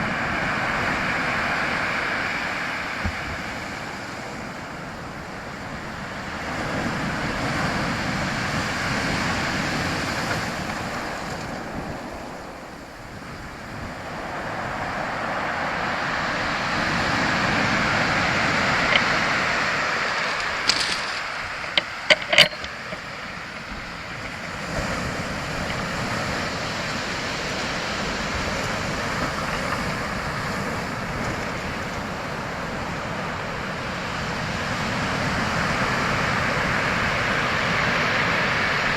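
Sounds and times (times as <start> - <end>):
sharp clicks: 20.3 - 23.2.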